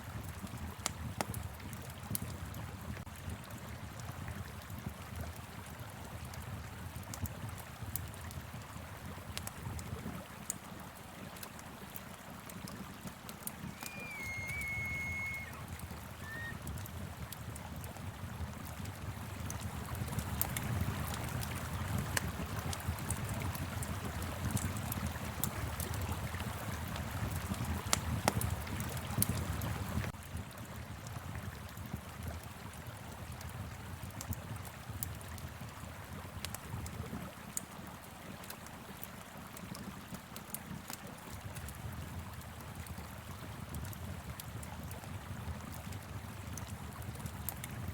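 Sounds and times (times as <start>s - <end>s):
wind: 0.0s - 47.9s
wood fire crackling and popping: 6.2s - 31.5s
river rushing: 13.5s - 16.5s.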